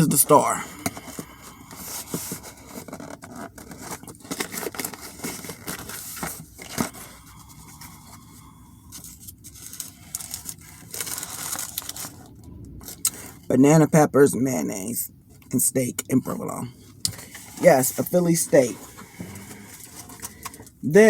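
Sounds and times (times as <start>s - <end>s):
paper wrapper rustling and tearing: 0.0s - 8.0s, 8.9s - 13.4s.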